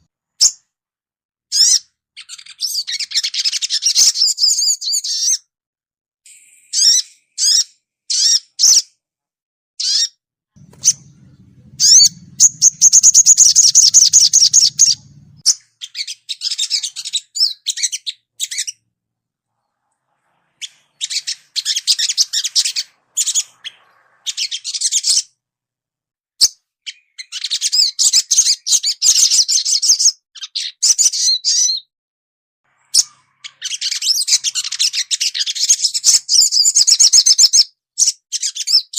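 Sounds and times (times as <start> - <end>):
songbird chirping and trilling: 1.5 - 5.5, 6.3 - 9.0, 9.8 - 18.8, 19.5 - 25.4, 26.4 - 31.9, 32.7 - 38.9.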